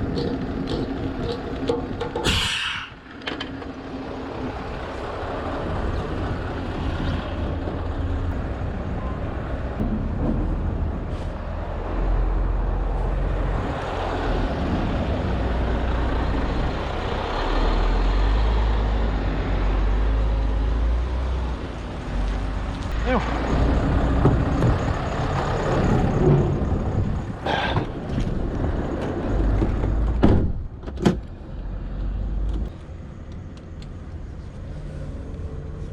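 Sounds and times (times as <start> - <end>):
air brake hiss: 2.2 - 3.0
truck engine running: 21.9 - 30.2.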